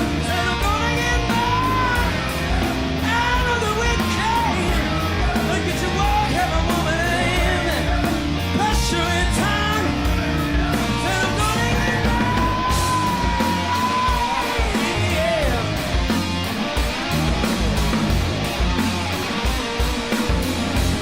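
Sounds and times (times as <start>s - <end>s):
man singing: 0.0s - 16.1s
driving drums: 0.0s - 21.0s
electric guitar: 0.0s - 21.0s
hard rock band playing: 0.0s - 21.0s.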